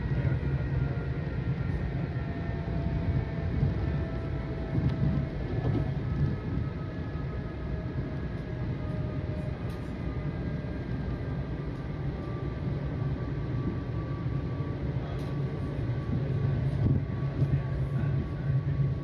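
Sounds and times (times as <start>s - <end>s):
train wheels rumbling on track: 0.0s - 19.0s.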